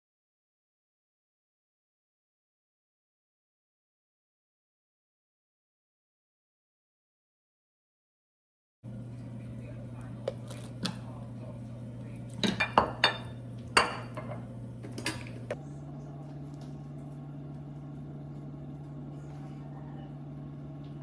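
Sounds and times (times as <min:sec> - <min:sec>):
steady low hum: 0:08.9 - 0:21.0
dishes and cutlery clinking: 0:12.4 - 0:15.6.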